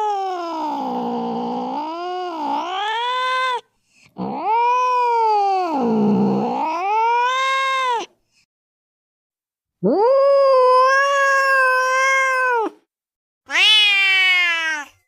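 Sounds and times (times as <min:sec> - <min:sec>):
angry cat yowling: 0:00.0 - 0:08.1, 0:09.8 - 0:12.8, 0:13.5 - 0:15.0.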